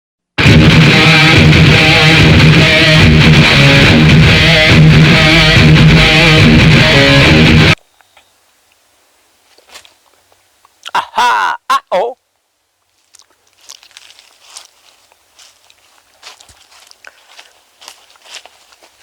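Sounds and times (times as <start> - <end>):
strummed guitar music: 0.4 - 7.8.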